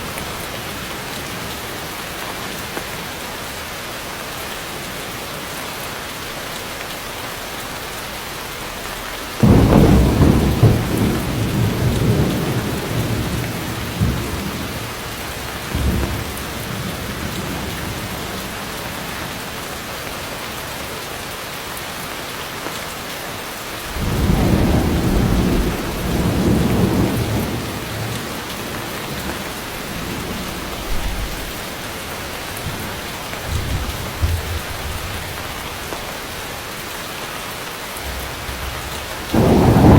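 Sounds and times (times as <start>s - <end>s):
heavy rain hissing: 0.0s - 39.9s
thunder rumbling: 9.4s - 20.1s, 23.9s - 36.4s, 38.0s - 39.9s.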